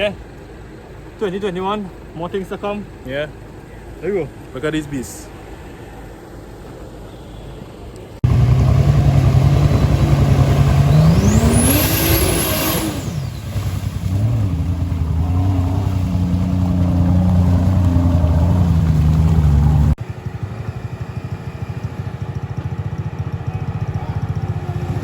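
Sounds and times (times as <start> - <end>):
high engine whine: 7.8 - 25.0
off-road vehicle engine running: 8.2 - 25.0.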